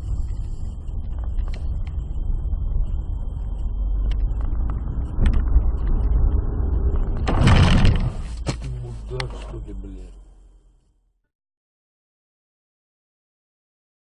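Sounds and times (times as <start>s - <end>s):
car engine and road noise: 0.0s - 11.2s.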